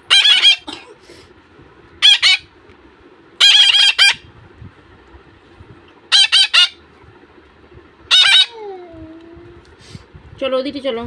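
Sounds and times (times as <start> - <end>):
parakeet chicks begging calls: 0.0 - 0.7, 2.0 - 2.5, 3.4 - 4.4, 6.0 - 6.9, 8.0 - 8.7.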